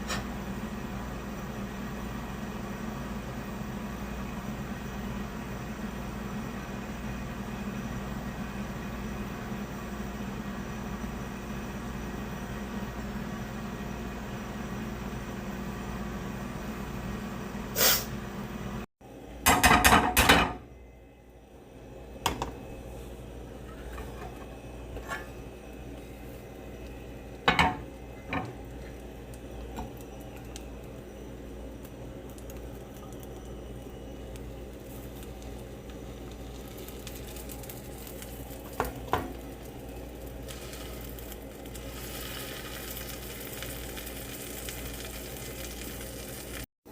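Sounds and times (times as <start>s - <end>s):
background hum: 19.0s - 46.6s.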